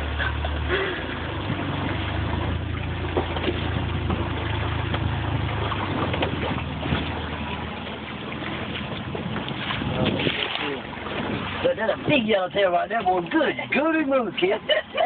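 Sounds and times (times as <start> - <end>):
boat engine humming: 0.0 - 15.0
water washing: 0.0 - 15.0
wind noise: 8.8 - 12.3.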